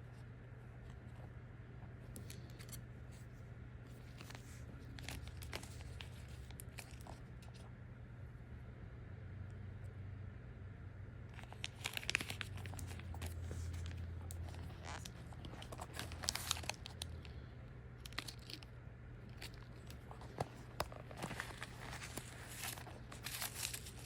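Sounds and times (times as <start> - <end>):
low steady hum: 0.0 - 24.0
packaging crinkling and tearing: 4.0 - 7.6, 11.4 - 17.4, 18.0 - 24.0.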